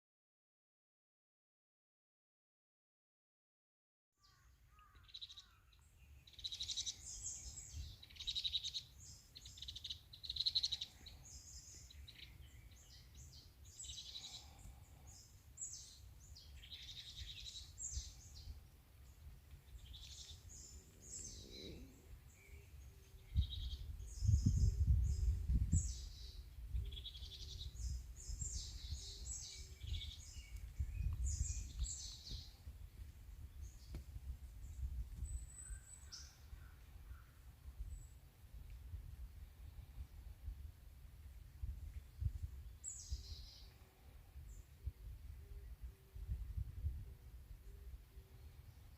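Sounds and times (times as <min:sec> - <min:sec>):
songbirds chirping and singing: 0:04.2 - 0:38.2, 0:42.3 - 0:46.3.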